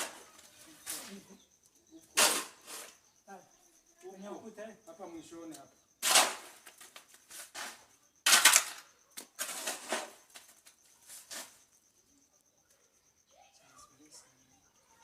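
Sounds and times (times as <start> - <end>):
rough scraping noises: 0.0 - 1.4, 2.1 - 3.1, 6.0 - 11.8.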